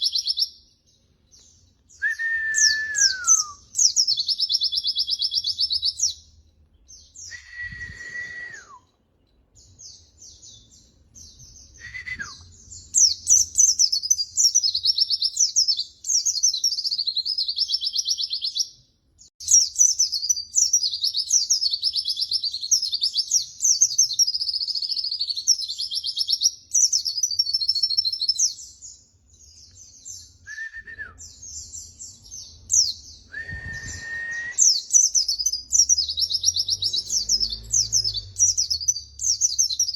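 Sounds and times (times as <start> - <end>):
bird twittering: 31.2 - 39.9.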